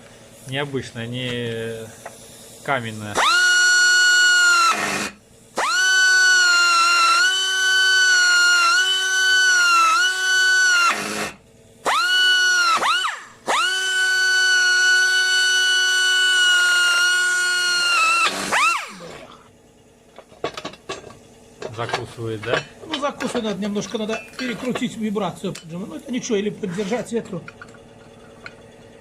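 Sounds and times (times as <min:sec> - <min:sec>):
electric drill whining: 0:03.2 - 0:19.4.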